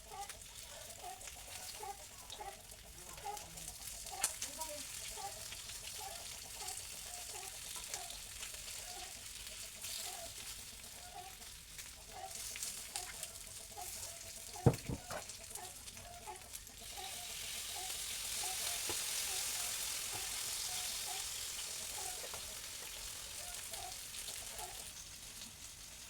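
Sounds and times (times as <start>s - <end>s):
food sizzling in hot oil: 0.0s - 26.0s
utensil knock: 14.6s - 15.2s.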